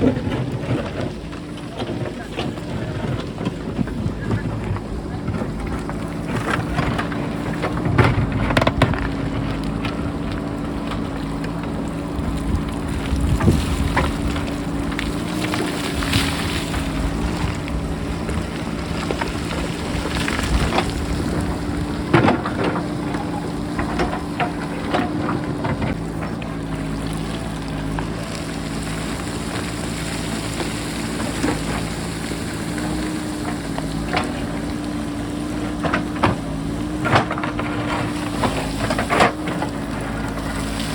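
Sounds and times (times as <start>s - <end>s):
wind buffeting microphone: 0.0s - 29.9s
diesel engine running: 0.0s - 40.9s
rocks rolling down slope: 0.0s - 40.9s.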